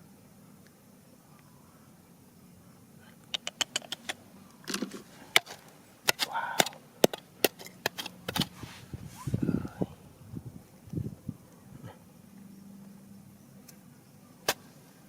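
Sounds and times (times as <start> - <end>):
scraping rustles: 8.0 - 9.5.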